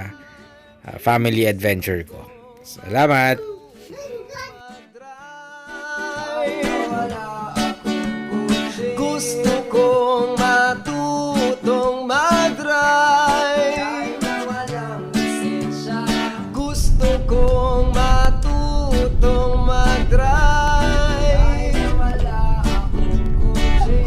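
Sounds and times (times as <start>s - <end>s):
person singing: 0.0s - 1.0s, 2.2s - 24.0s
strummed acoustic guitar: 2.3s - 24.0s
heavy low bass: 16.6s - 24.0s.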